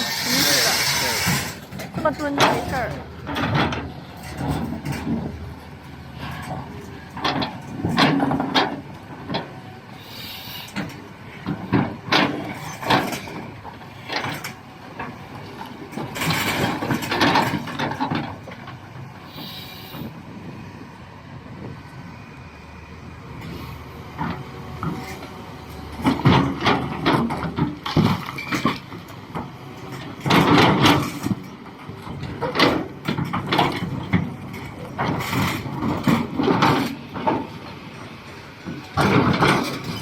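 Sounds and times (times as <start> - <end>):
grinding: 0.0 - 3.5
rock clanking against steel: 0.0 - 5.4, 38.9 - 40.0
excavator diesel engine running: 0.0 - 40.0.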